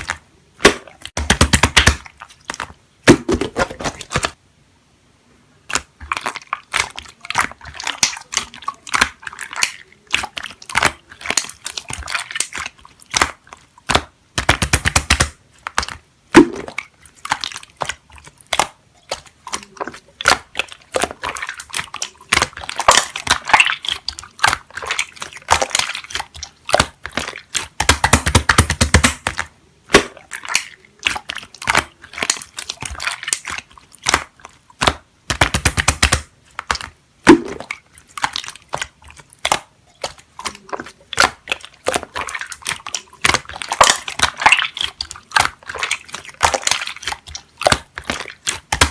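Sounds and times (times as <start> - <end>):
slime clicking and popping: 0.0 - 4.4, 5.7 - 48.9
slime crackling: 5.6 - 48.9.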